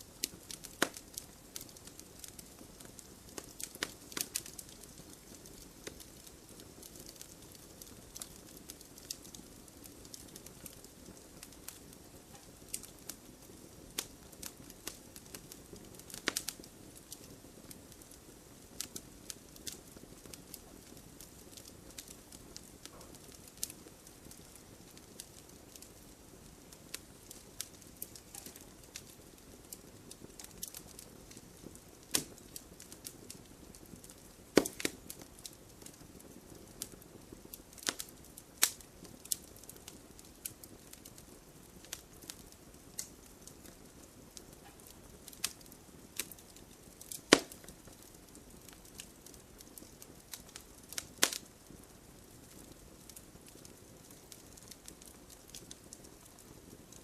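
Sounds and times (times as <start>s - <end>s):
campfire crackling and popping: 0.0s - 57.0s
hiss of flame: 13.9s - 55.1s.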